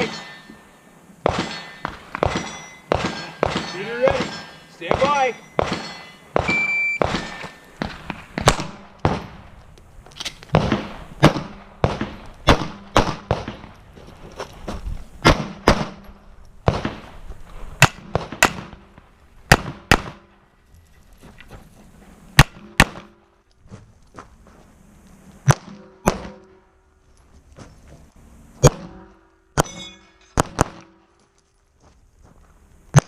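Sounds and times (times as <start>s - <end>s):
pistol shots: 1.2s - 9.4s, 10.5s - 13.7s, 17.8s - 20.4s.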